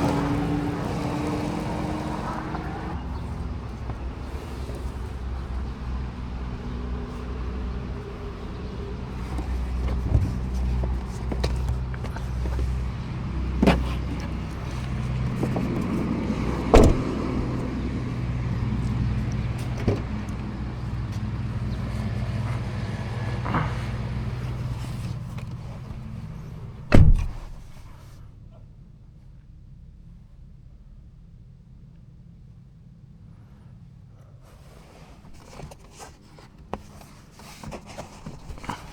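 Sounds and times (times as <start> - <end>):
low vehicle hum: 0.0 - 38.9
loud thump: 16.7 - 17.4, 26.9 - 27.6.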